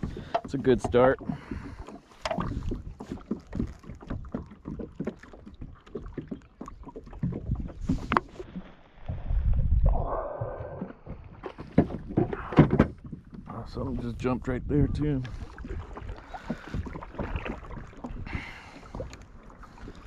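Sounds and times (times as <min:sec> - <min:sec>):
taps and knocks on kayak hull: 0:00.0 - 0:08.4, 0:11.1 - 0:14.0
wind rumble on microphone: 0:09.0 - 0:19.2.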